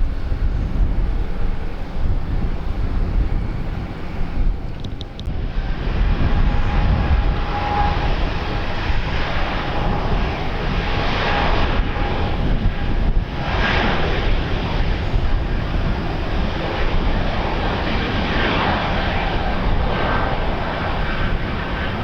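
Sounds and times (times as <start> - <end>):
aircraft engine whine: 0.0 - 22.0
wind rumble on microphone: 0.0 - 22.0.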